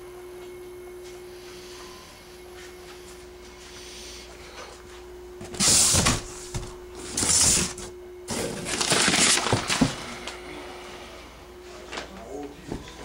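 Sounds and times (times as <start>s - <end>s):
packaging rustling and ripping: 7.0s - 10.4s.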